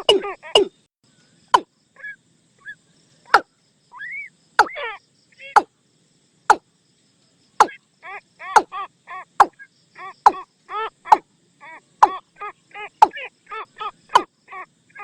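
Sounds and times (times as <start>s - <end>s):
watercock decoy clucks: 0.0s - 0.8s, 4.6s - 4.8s, 5.4s - 5.7s, 8.4s - 11.3s, 12.0s - 14.3s.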